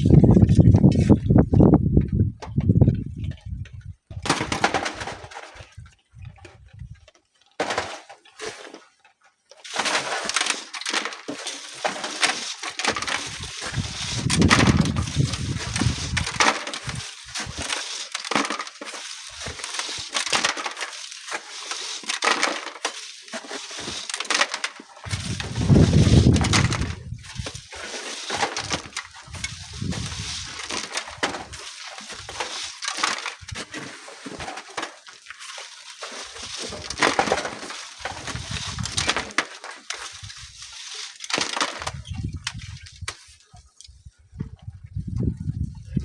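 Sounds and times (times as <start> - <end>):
wind rumbling on microphone: 0.0 - 4.3, 5.0 - 7.1, 13.2 - 17.6, 25.0 - 27.8, 28.6 - 31.6, 38.1 - 39.1, 41.8 - 46.0
stones clinking and rattling: 9.6 - 42.2
gritty scraping of sand: 9.7 - 43.4.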